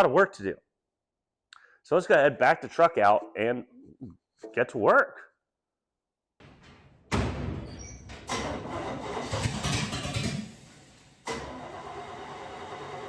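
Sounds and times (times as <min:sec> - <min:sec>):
truck engine starting and idling: 0:06.4 - 0:13.0.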